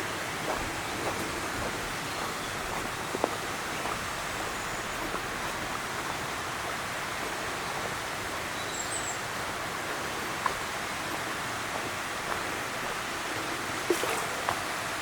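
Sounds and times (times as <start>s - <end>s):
rushing flowing water: 0.0s - 15.0s
faint high bird chirp: 8.5s - 9.3s.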